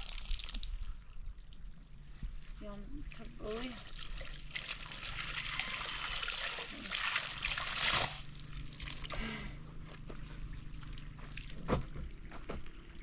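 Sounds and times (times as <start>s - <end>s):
water pouring and splashing: 0.0s - 1.7s, 2.7s - 9.2s, 10.6s - 13.0s
water dripping: 0.0s - 2.0s.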